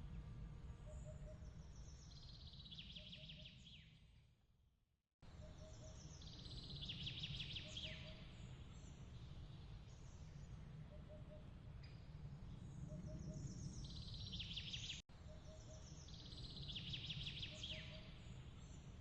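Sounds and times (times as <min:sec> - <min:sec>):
faint low rumble: 0:00.0 - 0:02.6
songbird trilling: 0:16.6 - 0:18.2.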